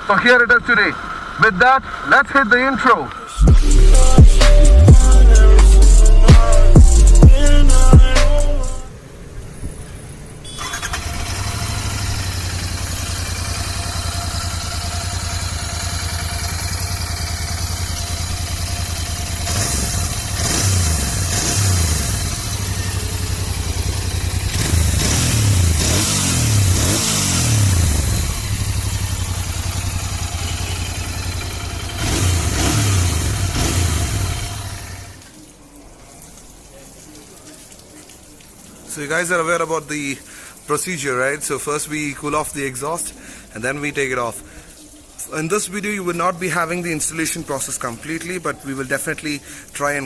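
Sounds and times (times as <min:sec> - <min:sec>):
motorcycle engine revving: 0:10.6 - 0:35.2
motorcycle engine idling: 0:10.8 - 0:35.2.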